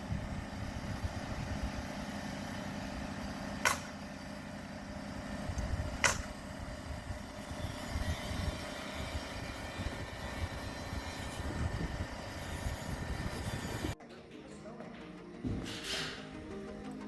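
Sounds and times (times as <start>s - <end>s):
nail gun firing: 6.0s - 6.3s.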